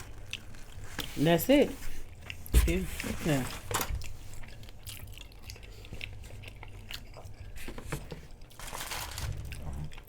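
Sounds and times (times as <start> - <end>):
person chewing crunchy chips: 0.0 - 1.1, 4.0 - 7.6, 8.3 - 10.0.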